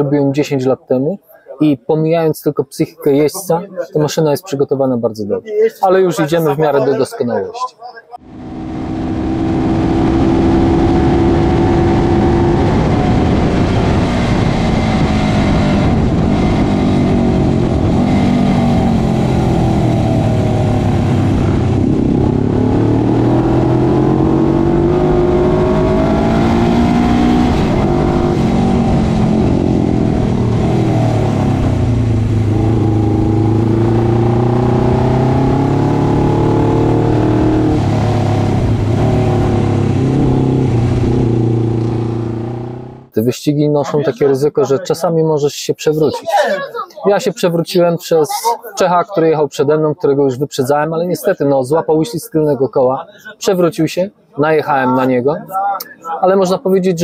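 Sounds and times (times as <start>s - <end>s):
motorcycle engine at racing speed: 8.2s - 43.2s.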